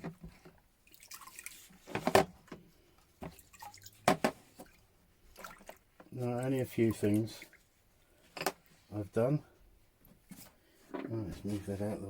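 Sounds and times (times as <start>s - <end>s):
liquid dripping and splashing: 0.8s - 1.8s, 3.3s - 5.9s.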